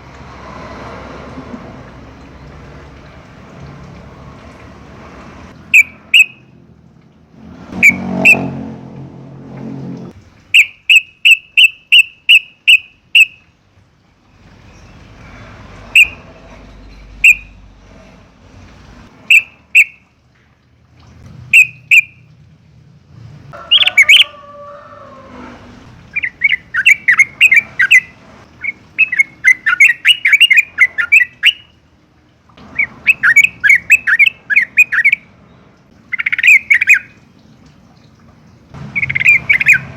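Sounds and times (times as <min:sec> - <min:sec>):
bird chirping: 0:05.7 - 0:06.4, 0:16.0 - 0:17.6, 0:19.3 - 0:20.0, 0:21.6 - 0:22.2, 0:26.1 - 0:31.8, 0:32.7 - 0:37.2, 0:38.5 - 0:39.9
bird chattering bursts: 0:38.9 - 0:39.9.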